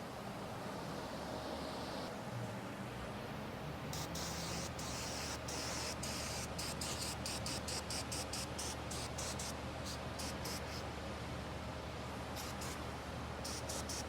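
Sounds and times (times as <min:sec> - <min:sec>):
aerosol can spraying: 0:04.0 - 0:10.8, 0:12.4 - 0:12.8, 0:13.4 - 0:14.0.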